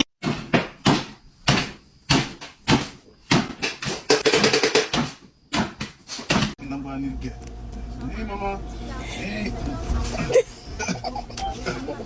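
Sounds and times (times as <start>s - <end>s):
sharp knocks on wood: 0.2s - 6.6s.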